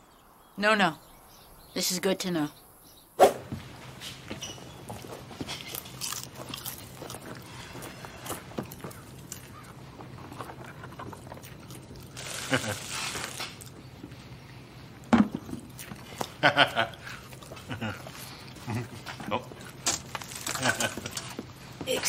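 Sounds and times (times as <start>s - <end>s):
person crunching snack: 5.5s - 13.8s, 19.7s - 21.2s.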